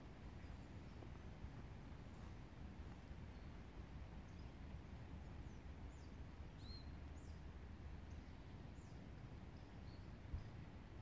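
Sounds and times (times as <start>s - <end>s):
faint high-pitched bird calls: 5.4s - 7.4s.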